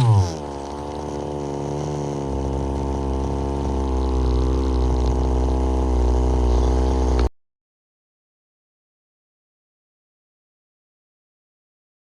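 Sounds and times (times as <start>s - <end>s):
small two-stroke engine running: 0.0s - 7.3s.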